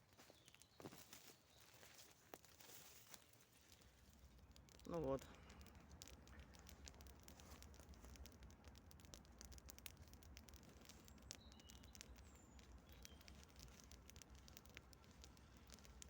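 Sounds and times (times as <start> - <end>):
campfire crackling: 0.0 - 16.0
faint low hiss: 0.0 - 16.0
bird chirps: 10.8 - 16.0.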